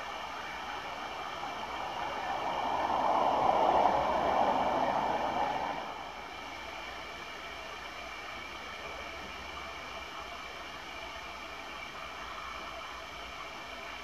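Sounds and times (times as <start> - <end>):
train passing: 0.0 - 8.2
steady background hiss: 0.0 - 14.0.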